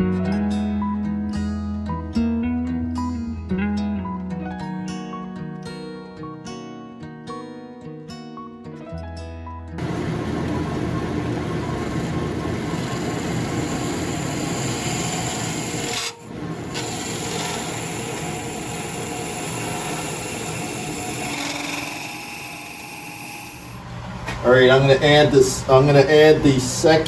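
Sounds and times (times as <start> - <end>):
lathe motor hum: 9.8 - 27.0
turning tool rasping on wood: 12.6 - 23.7.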